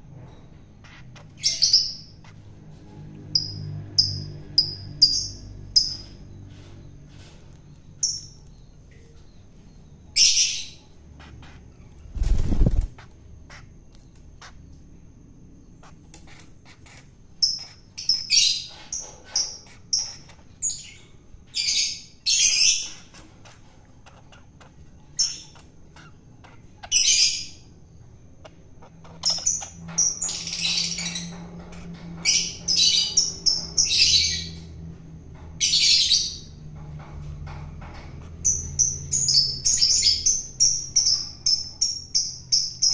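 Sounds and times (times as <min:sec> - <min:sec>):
bird harsh rasping calls: 0:15.7 - 0:34.6.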